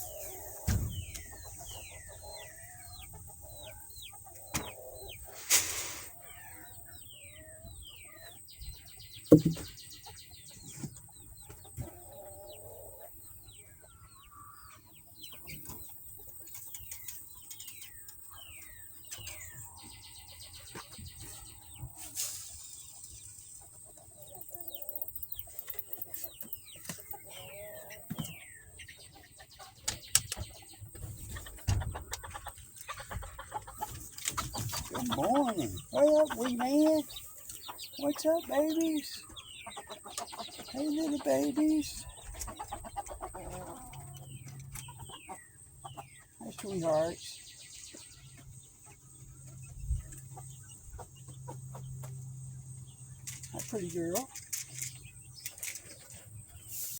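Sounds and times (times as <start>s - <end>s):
chickens clucking: 0.0s - 56.9s
chicks peeping: 0.0s - 56.9s
sharp knocks: 9.3s - 9.7s.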